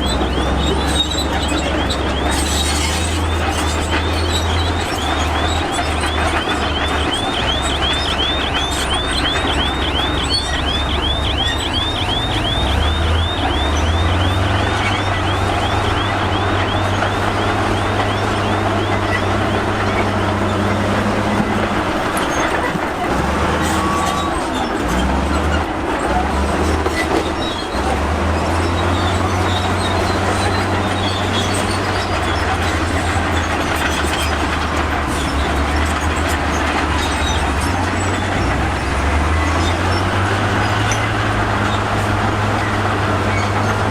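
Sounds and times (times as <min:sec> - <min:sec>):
diesel engine hum: 0:00.0 - 0:43.9
machinery clatter: 0:00.0 - 0:43.9.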